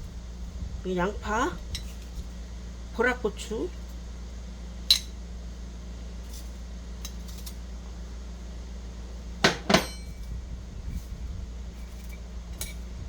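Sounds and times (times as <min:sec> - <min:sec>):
low steady hum: 0:00.0 - 0:13.0
louder knocks: 0:09.4 - 0:09.9
utensils and dishes clinking: 0:09.4 - 0:10.2.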